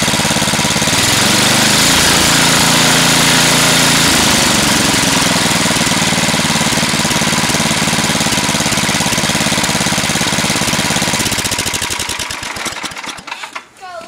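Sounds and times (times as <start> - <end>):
snowblower engine running: 0.0 - 13.7.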